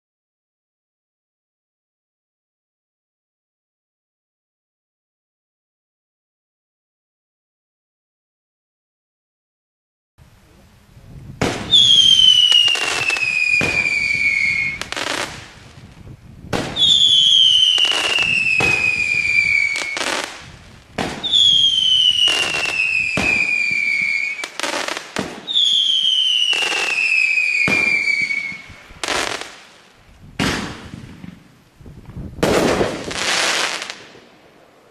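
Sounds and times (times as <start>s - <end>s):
firework whistles: 11.4s - 15.7s, 16.5s - 29.7s, 32.3s - 34.3s
firework bangs: 11.4s - 34.9s
firework cracks: 11.4s - 34.9s.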